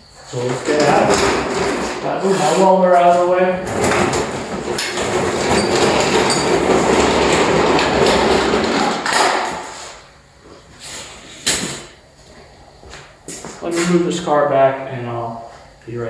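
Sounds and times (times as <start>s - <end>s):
welder wheels rumbling rattle: 0.2s - 9.9s.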